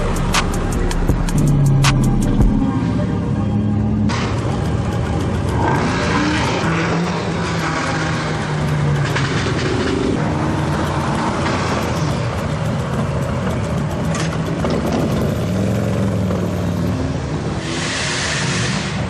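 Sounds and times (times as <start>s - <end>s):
car engines running: 0.0s - 19.0s
short burst of hiss: 17.6s - 19.0s.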